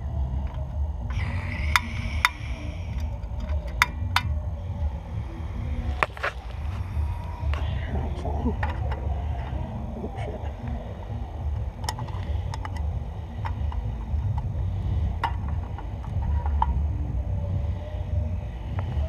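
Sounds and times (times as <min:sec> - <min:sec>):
wind rumble on microphone: 0:00.0 - 0:19.0
coffee-maker parts clicking: 0:11.8 - 0:14.5.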